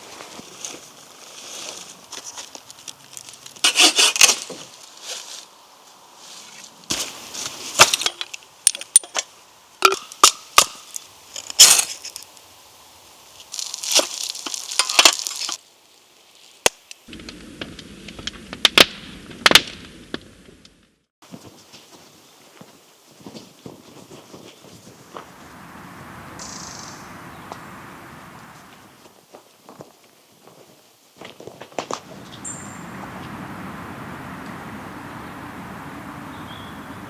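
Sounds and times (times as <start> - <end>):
dry sticks snapping: 7.8 - 12.4, 13.4 - 15.6.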